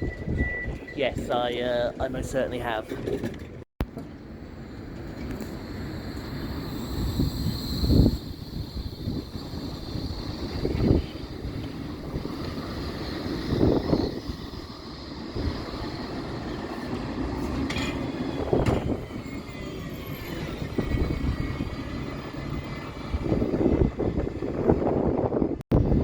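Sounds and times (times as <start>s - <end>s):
tram rumble: 0.0s - 26.0s
electric motor whine: 4.8s - 17.0s
wind thumping on microphone: 6.8s - 16.3s, 16.9s - 19.3s, 22.9s - 26.0s.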